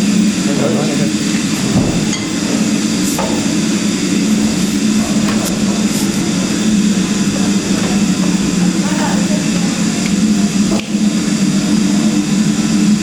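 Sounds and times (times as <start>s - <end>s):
train engine idling: 0.0s - 13.0s
light clanks: 1.4s - 11.1s.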